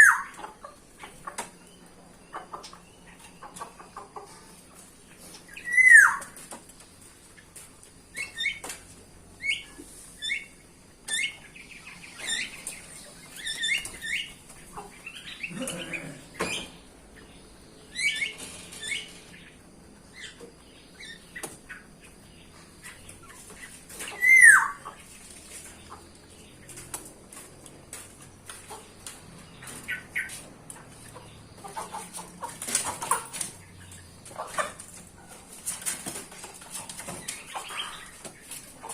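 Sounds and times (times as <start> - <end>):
birds chirping: 0.0 - 38.9
downward-sliding bird whistle: 5.6 - 6.2.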